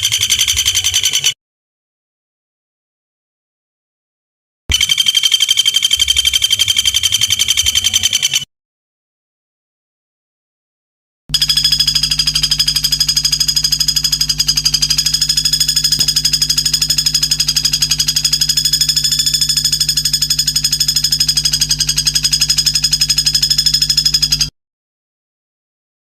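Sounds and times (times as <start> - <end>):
high-pitched buzzing bird trill: 0.0 - 1.4, 4.7 - 8.5, 11.3 - 24.5
low steady hum: 11.3 - 24.5.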